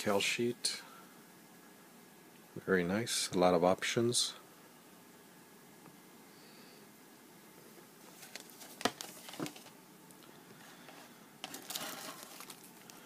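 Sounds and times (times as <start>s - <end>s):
rustling of plastic bags and paper: 8.0s - 9.8s, 10.6s - 13.0s.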